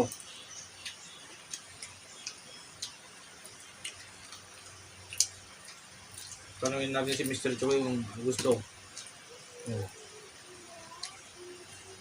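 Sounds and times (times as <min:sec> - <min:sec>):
eating clicks and ticks: 0:00.0 - 0:09.9, 0:10.9 - 0:11.8.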